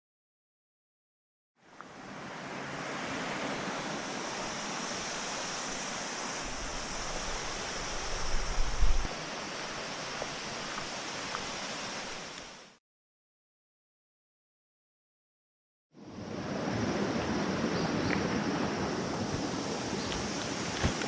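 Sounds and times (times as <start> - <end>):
wind buffeting microphone: 8.0 - 9.1.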